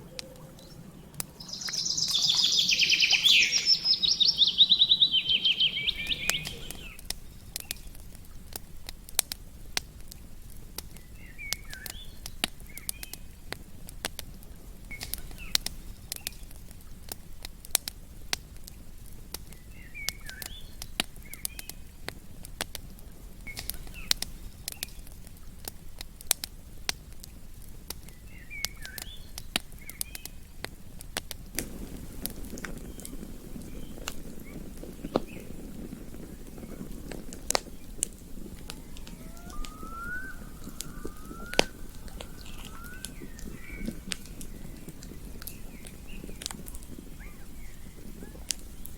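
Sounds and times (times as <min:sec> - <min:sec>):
chirping bird call: 0:00.0 - 0:07.0, 0:37.6 - 0:48.9
campfire crackling and popping: 0:00.0 - 0:48.9
low steady rumble: 0:30.8 - 0:48.9.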